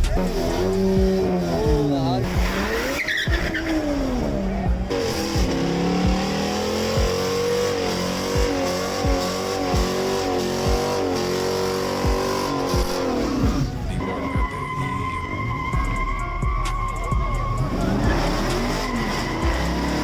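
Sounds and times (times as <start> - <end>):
car engine at high revs: 0.0 - 20.0.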